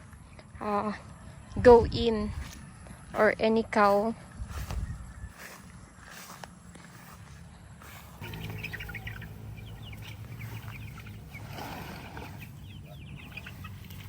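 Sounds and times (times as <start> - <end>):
chicks peeping and chirping: 2.4 - 14.0
low steady hum: 7.5 - 14.0.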